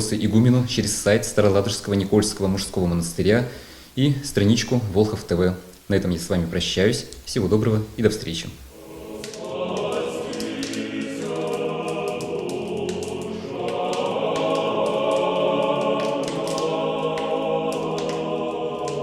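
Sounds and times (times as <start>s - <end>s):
choir singing chant: 8.8s - 19.0s.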